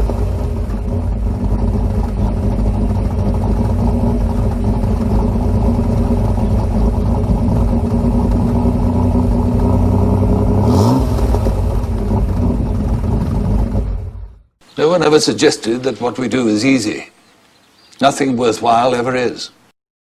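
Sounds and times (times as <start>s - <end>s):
engine revving: 0.0s - 14.5s
car engine idling: 0.0s - 14.6s.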